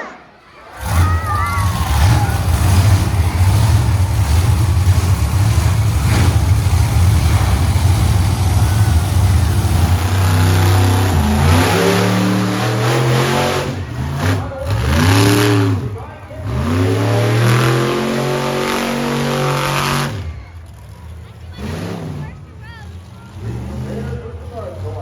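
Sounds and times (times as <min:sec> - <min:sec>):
monster truck engine revving: 0:00.6 - 0:25.0.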